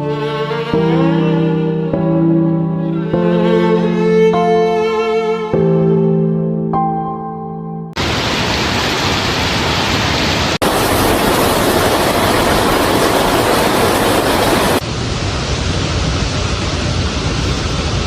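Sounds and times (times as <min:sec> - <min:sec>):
rush of water: 0:08.0 - 0:18.0.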